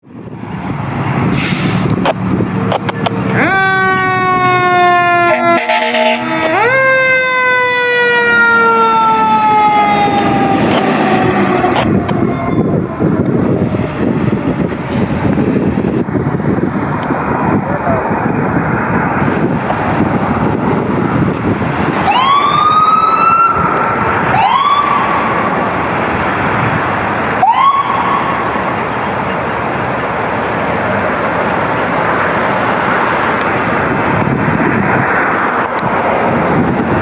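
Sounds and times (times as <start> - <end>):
heavy engine and road noise: 0.0 - 37.0
siren rising wails: 2.0 - 15.0, 21.8 - 26.7, 27.3 - 29.5.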